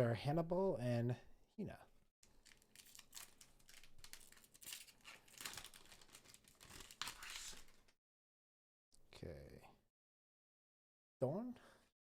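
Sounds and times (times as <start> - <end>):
foil wrapper crinkling and tearing: 2.2 - 7.9.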